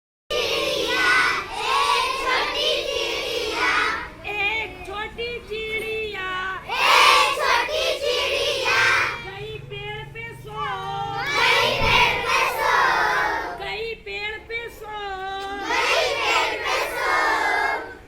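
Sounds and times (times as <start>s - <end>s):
children singing: 0.3s - 4.2s, 6.7s - 9.4s, 11.2s - 13.7s, 15.5s - 18.0s.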